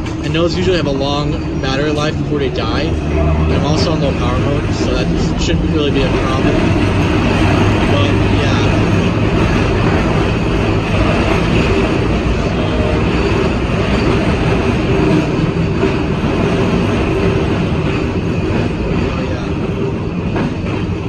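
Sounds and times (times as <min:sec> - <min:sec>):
streetcar rumbling on rails: 0:00.0 - 0:21.0.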